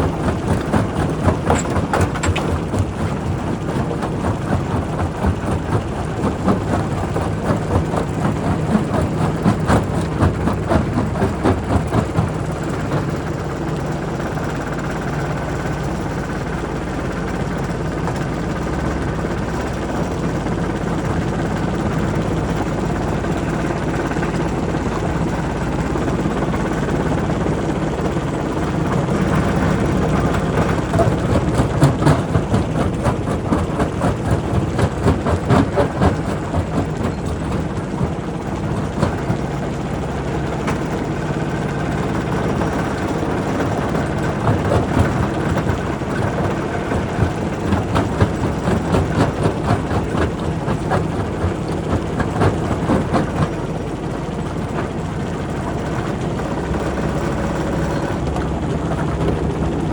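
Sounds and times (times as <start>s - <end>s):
rock crusher mechanical drone: 0.0s - 16.6s, 17.5s - 59.9s
rock cracking and knocking: 0.2s - 6.6s.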